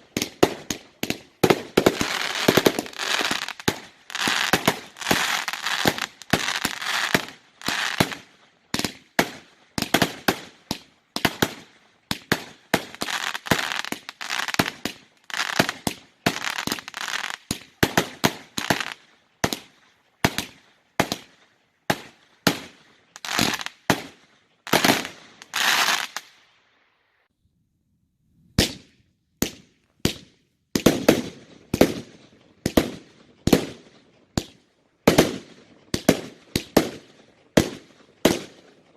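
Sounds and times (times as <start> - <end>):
fireworks bangs: 0.0 - 21.3
fireworks crackling: 0.0 - 26.4.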